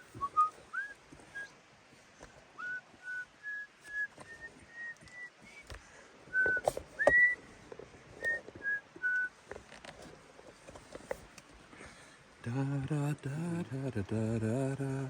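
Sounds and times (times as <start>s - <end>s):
man whistling a tune: 0.0s - 1.6s, 2.6s - 5.7s, 6.3s - 7.5s, 8.2s - 9.4s.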